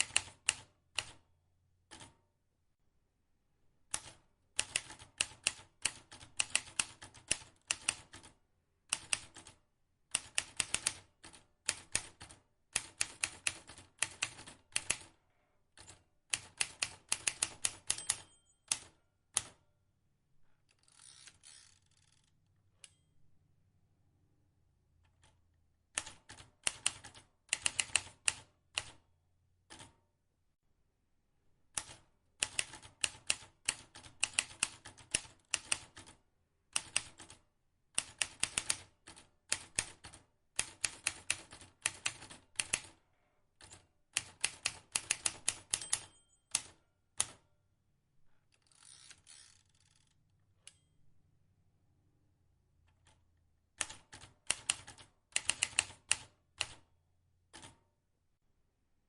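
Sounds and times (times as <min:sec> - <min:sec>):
typewriter keys clicking: 0:31.8 - 0:36.1, 0:38.0 - 0:42.9, 0:43.6 - 0:47.4, 0:53.8 - 0:56.8.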